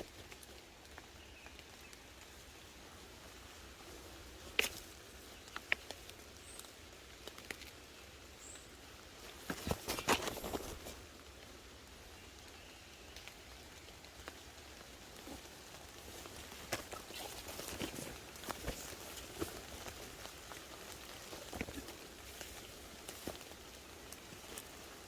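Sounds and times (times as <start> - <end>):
leaves and brush rustling: 0.0 - 25.0
twigs snapping: 4.3 - 7.8, 9.3 - 11.0, 14.0 - 25.0.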